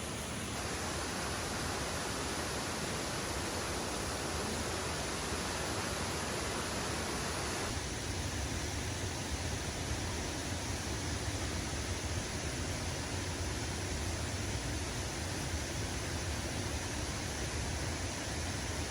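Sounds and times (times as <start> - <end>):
waterfall rushing: 0.0 - 7.7.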